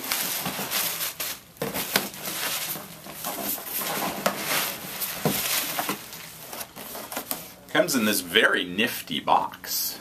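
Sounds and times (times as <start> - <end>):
cardboard rustling and scraping: 0.0 - 7.6.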